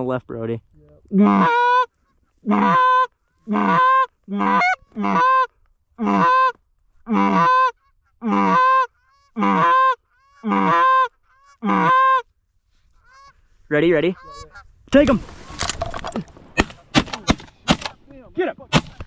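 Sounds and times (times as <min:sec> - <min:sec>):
goose call honks: 0:01.1 - 0:12.3.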